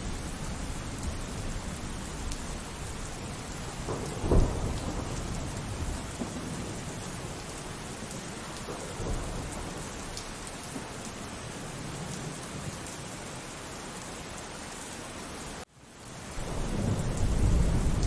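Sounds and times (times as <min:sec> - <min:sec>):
rolling thunder: 0:00.0 - 0:10.9, 0:16.4 - 0:18.0
steady rain falling: 0:00.0 - 0:18.0.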